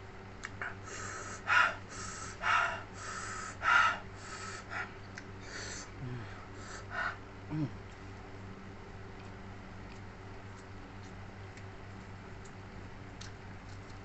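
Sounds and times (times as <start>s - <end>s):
person breathing hard through mouth: 0.6s - 7.7s.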